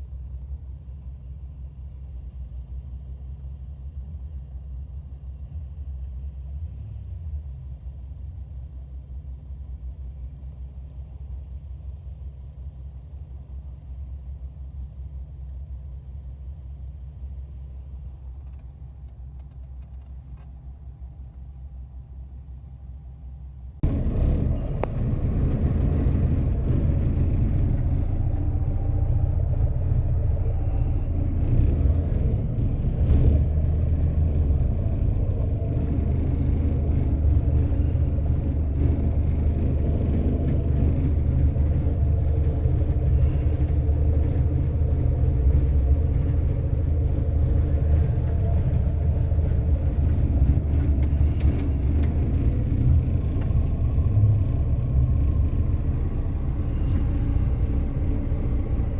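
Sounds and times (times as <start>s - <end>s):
car engine rumble: 0.0s - 58.9s
road noise: 15.9s - 58.9s.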